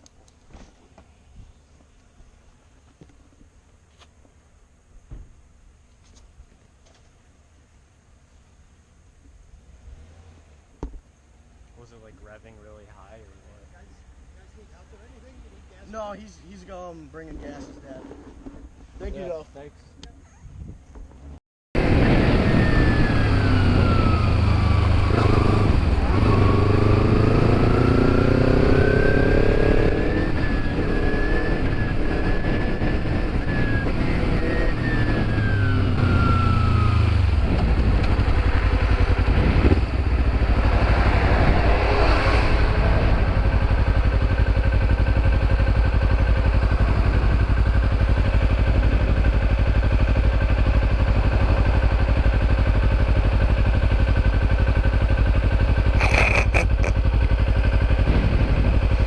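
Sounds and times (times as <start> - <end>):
motorcycle engine running: 21.8 - 59.0.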